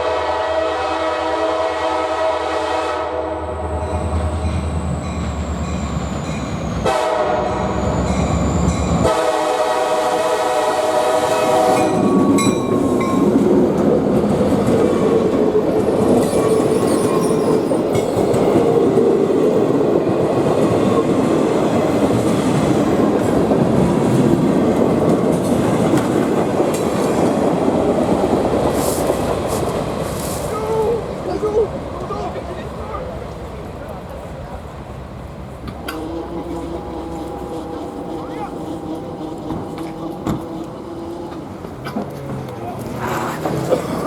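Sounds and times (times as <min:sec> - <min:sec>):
locomotive horn: 0:00.0 - 0:05.9, 0:06.5 - 0:12.7, 0:35.8 - 0:42.0
train wheels rumbling and clattering: 0:03.5 - 0:44.0.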